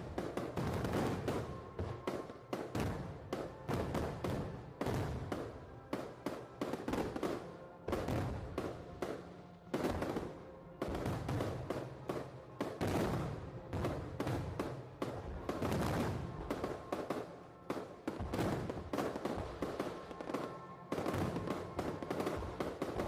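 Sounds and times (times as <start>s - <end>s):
music playing: 0.0s - 23.0s.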